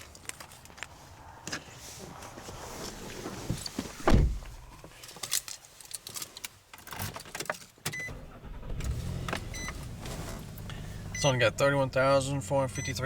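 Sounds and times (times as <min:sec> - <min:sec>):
heavy thump: 0:04.0 - 0:04.6.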